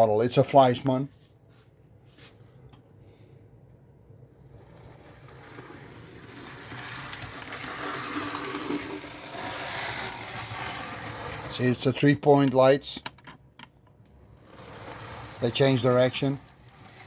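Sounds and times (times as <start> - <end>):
model train motor hum: 4.4 - 11.7, 14.2 - 17.0
model train wheels rattling on rails: 4.4 - 12.1, 14.1 - 17.0.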